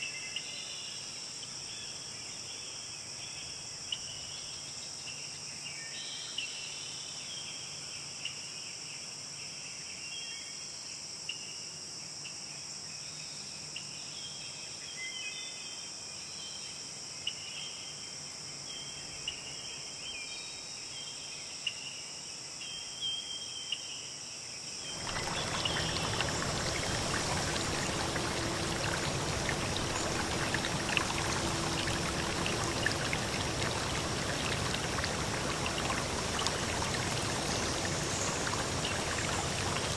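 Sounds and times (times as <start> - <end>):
crickets chirping: 24.7 - 39.9
stream running: 24.9 - 39.9.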